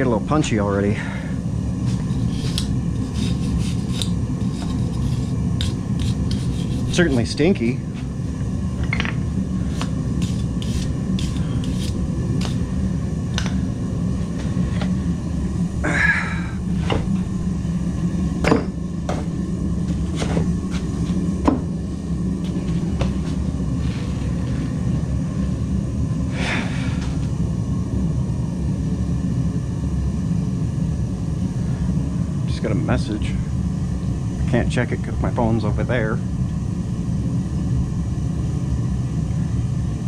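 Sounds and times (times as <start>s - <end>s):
forge fire rumbling: 0.0s - 40.0s
scraping noises: 1.8s - 8.1s, 9.6s - 12.7s.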